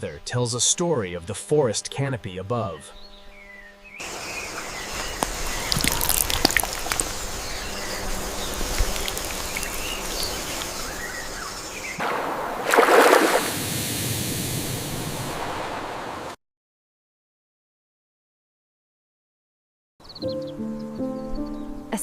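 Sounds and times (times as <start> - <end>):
water trickling and sloshing: 4.5 - 13.6
water dripping: 5.0 - 11.3.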